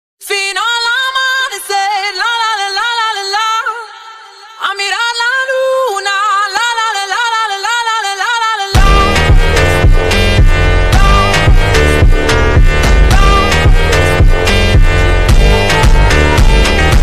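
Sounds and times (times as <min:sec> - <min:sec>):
high unaccompanied singing voice: 0:00.2 - 0:09.6, 0:13.1 - 0:17.0
backing track with heavy bass: 0:08.8 - 0:17.0.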